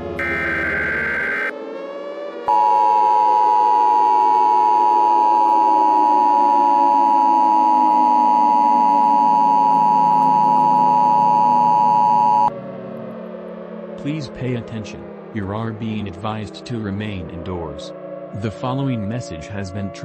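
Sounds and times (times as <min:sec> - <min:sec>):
tones gliding downward in pitch: 0:00.0 - 0:17.4
two-tone alert signal: 0:00.2 - 0:01.5, 0:02.5 - 0:12.5.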